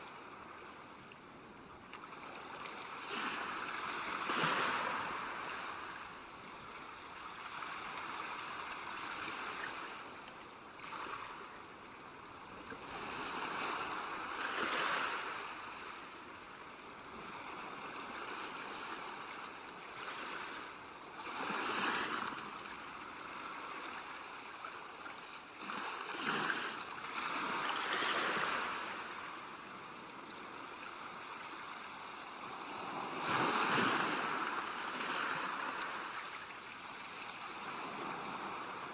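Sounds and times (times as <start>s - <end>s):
sea waves washing onto shore: 25.5s - 38.9s.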